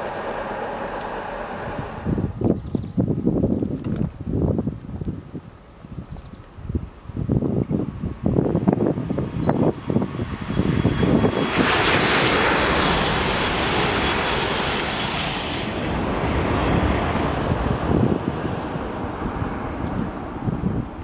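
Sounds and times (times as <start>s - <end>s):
electric train passing: 0.0s - 3.4s, 8.8s - 21.0s
wind buffeting microphone: 0.0s - 21.0s.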